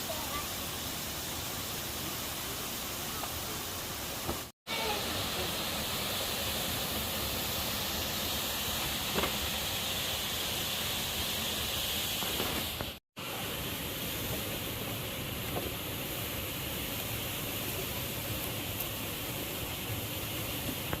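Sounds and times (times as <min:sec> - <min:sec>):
waterfall rushing: 0:00.0 - 0:11.7.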